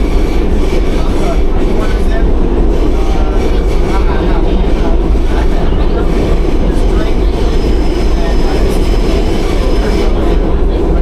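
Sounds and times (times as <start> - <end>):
subway train wheels rumbling: 0.0 - 11.0.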